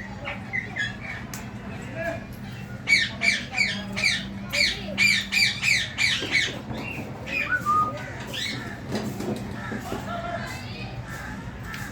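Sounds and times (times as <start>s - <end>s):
parakeets screeching: 2.8s - 9.9s.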